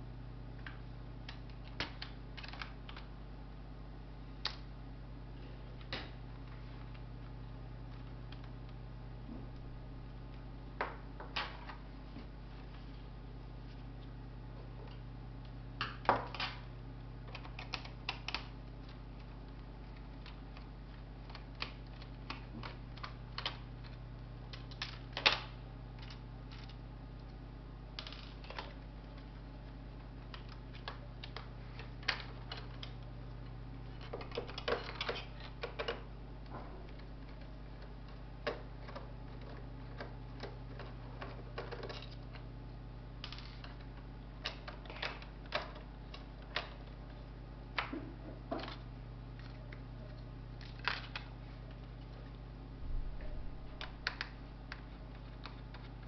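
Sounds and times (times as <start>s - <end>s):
steady low hum: 0.0s - 56.0s
laptop parts clicking and knocking: 17.3s - 18.6s, 34.0s - 36.1s.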